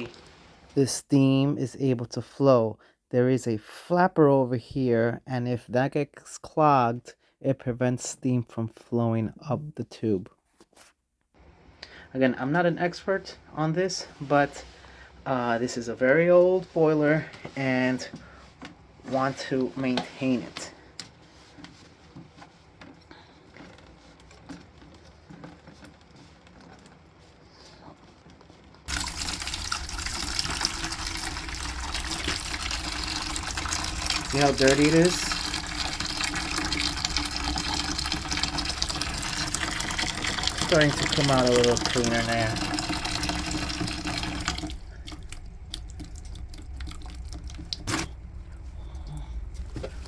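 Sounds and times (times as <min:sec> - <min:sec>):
water gushing from drain valve: 0:28.9 - 0:50.0.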